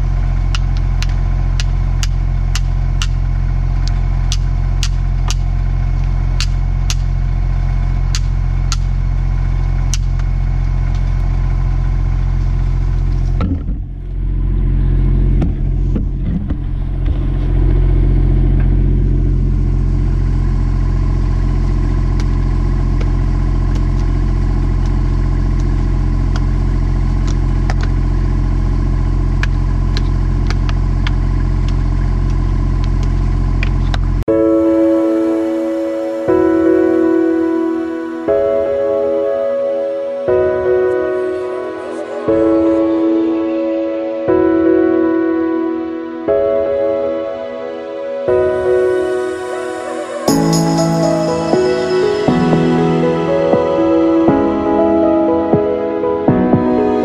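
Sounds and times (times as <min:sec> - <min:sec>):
diesel engine idling: 0:00.0 - 0:45.8, 0:47.5 - 0:57.0.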